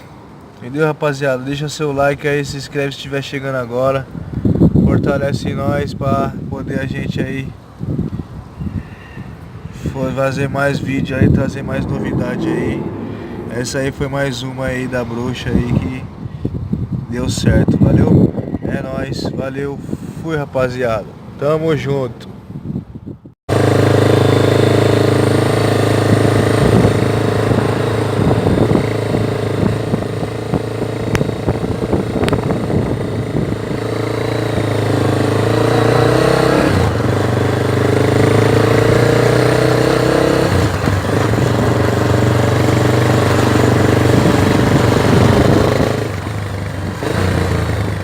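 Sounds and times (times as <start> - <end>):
motorcycle engine running: 23.5 - 48.0.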